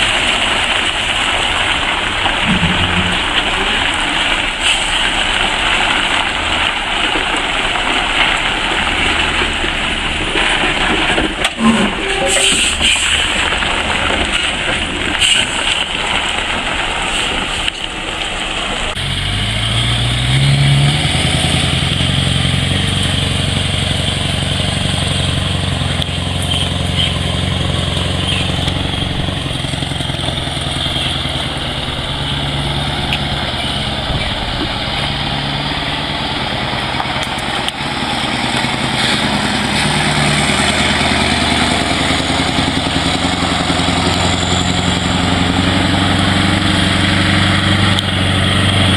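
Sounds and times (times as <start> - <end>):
truck engine running: 0.0 - 48.9.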